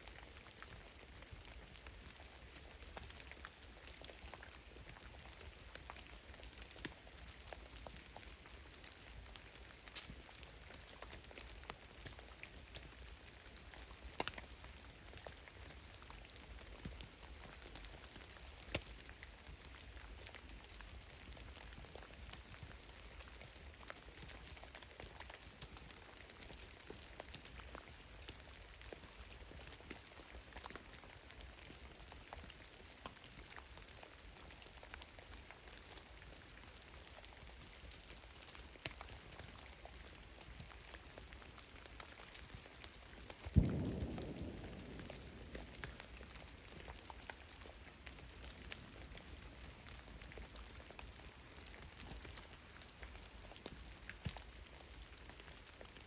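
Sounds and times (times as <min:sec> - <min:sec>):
faint steady hiss: 0:00.0 - 0:56.0.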